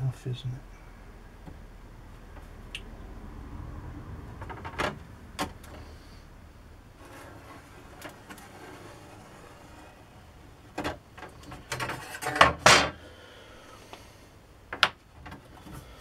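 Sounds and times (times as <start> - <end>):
metal scraping: 6.9 - 13.0.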